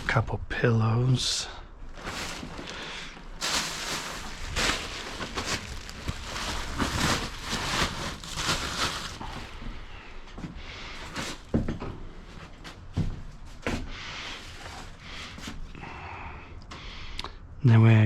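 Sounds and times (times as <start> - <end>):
rustling of soft items: 1.4 - 15.8.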